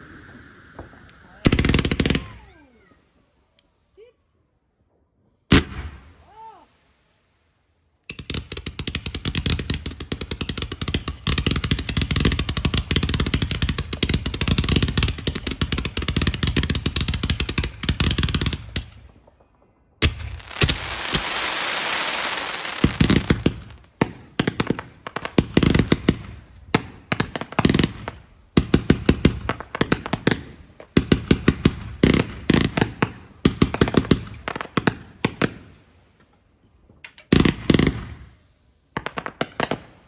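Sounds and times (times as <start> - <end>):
fireworks bangs and crackles: 0.0 - 2.8, 5.5 - 6.7, 8.1 - 36.0, 37.3 - 40.0
hissing crackle: 0.0 - 3.7, 12.6 - 24.0.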